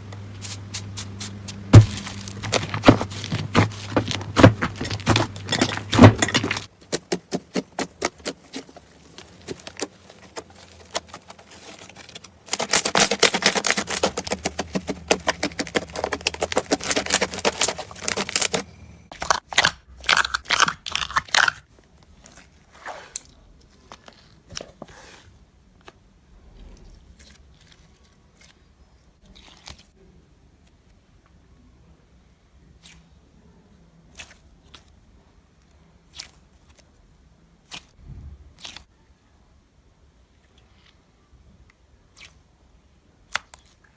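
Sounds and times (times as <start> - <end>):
slime crackling and popping: 0.9 - 21.6.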